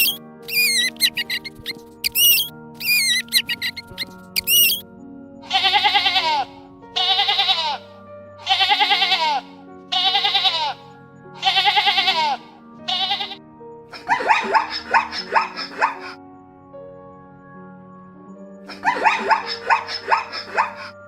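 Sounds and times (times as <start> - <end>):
bleating: 0.0 - 4.8, 5.5 - 13.4
puppy yelping: 0.0 - 4.8, 14.0 - 16.2, 18.8 - 21.0
background music: 0.0 - 21.0.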